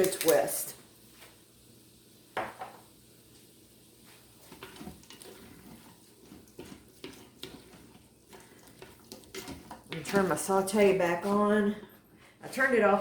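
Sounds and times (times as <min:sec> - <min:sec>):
soft kitchen clicks and scrapes: 0:02.4 - 0:12.8.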